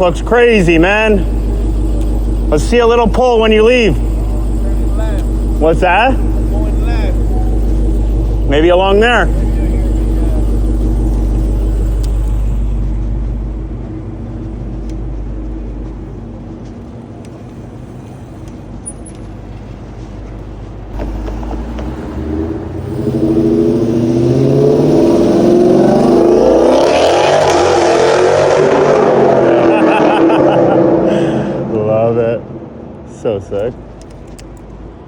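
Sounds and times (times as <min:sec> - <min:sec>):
truck engine revving: 0:00.0 - 0:16.2, 0:20.9 - 0:31.8.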